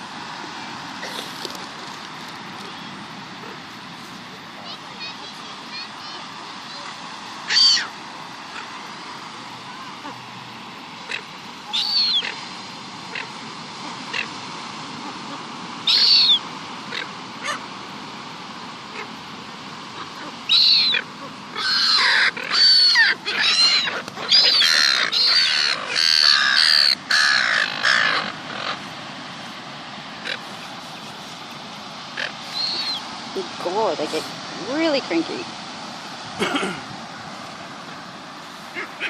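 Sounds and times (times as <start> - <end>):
seagulls calling harshly: 4.7 - 8.8, 11.0 - 17.7, 19.9 - 29.0, 30.1 - 33.2, 38.6 - 39.0.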